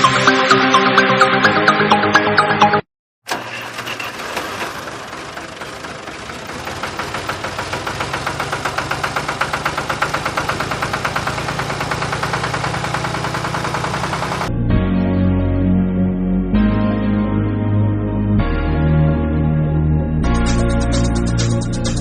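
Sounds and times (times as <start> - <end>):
small electric motor clattering: 3.4 - 14.5.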